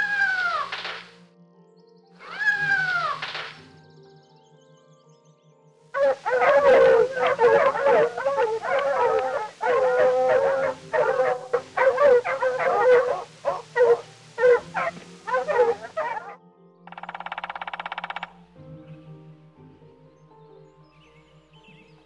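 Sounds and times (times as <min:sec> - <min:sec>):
canines howling and yipping: 0:00.0 - 0:00.8, 0:02.2 - 0:03.4, 0:06.0 - 0:16.4
soft background music: 0:00.0 - 0:22.0.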